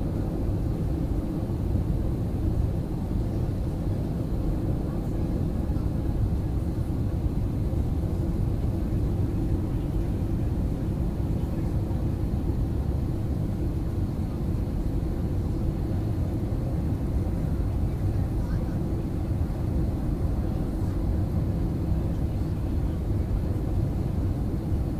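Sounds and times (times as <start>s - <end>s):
airliner engines and airflow rumble: 0.0s - 24.9s.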